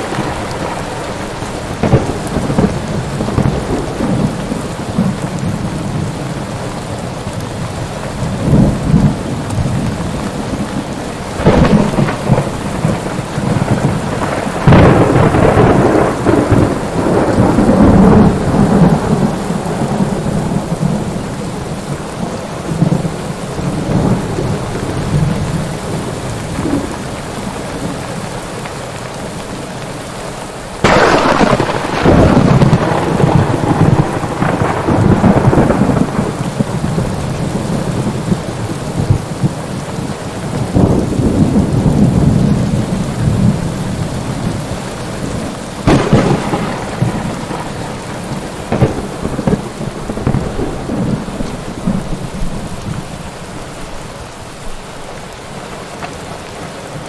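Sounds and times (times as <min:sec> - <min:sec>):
loud thunderclap: 0:00.0 - 0:05.7, 0:10.5 - 0:21.1, 0:30.8 - 0:39.6, 0:40.5 - 0:44.7, 0:45.3 - 0:53.1
rolling thunder: 0:00.0 - 0:06.4, 0:07.7 - 0:27.2, 0:30.8 - 0:53.4
steady rain: 0:00.0 - 0:57.0.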